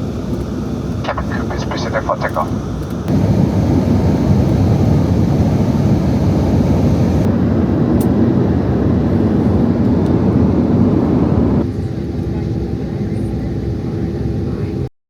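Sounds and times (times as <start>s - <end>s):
wind buffeting microphone: 3.1s - 11.7s.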